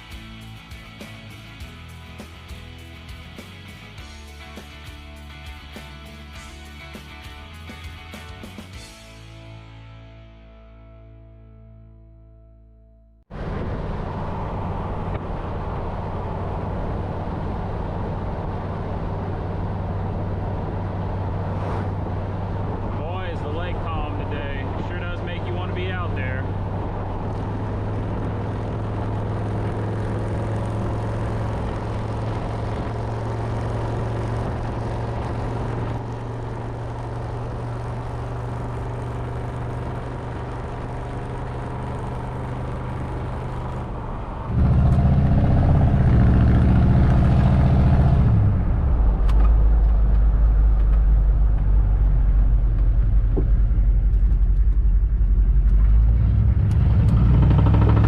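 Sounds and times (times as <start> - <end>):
truck engine running: 13.3 - 58.0.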